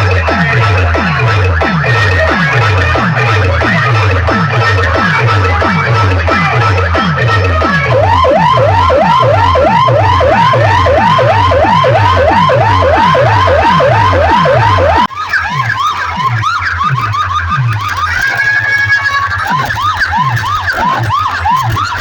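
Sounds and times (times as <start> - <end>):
falling bass hits: 0.0 - 15.1
remix music with siren-like sweeps: 0.0 - 22.0.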